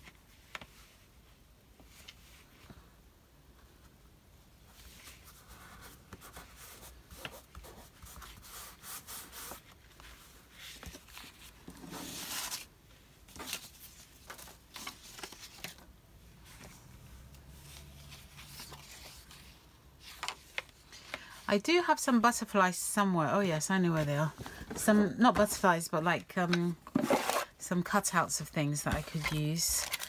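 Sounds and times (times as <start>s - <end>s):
paper rustling on a desk: 4.7s - 16.8s, 17.6s - 21.3s, 28.8s - 30.0s.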